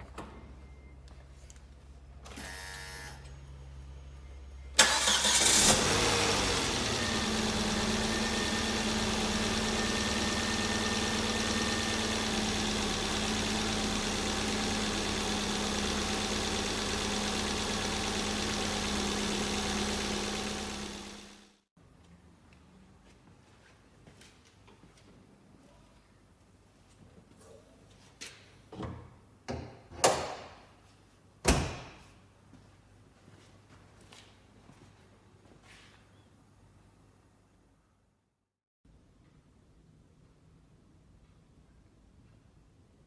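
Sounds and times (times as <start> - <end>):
car engine starting and idling: 2.2 - 21.6
starter motor whir: 2.3 - 3.2, 4.8 - 21.6.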